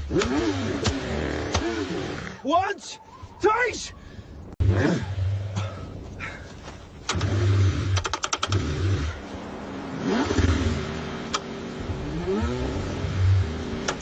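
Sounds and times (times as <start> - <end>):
car engine cranking: 0.0 - 2.4, 7.0 - 9.3, 10.0 - 14.0.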